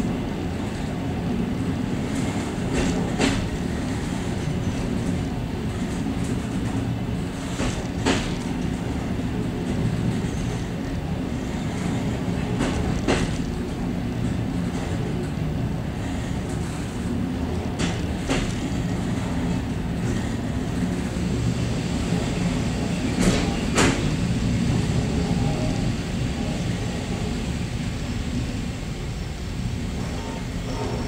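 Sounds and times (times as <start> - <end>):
train rumbling on track: 0.0 - 31.0
wheels clacking over rail joints: 2.1 - 9.0, 11.8 - 15.4, 16.0 - 20.9.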